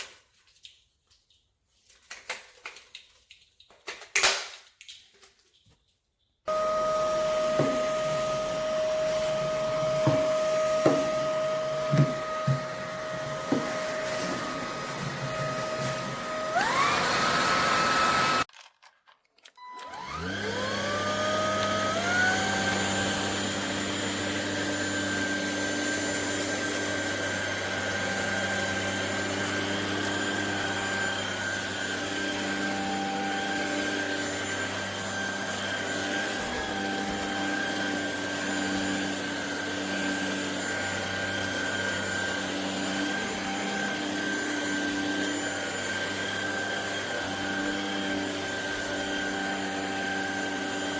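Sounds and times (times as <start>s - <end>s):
vacuum motor whining: 6.5s - 18.5s, 19.6s - 50.9s.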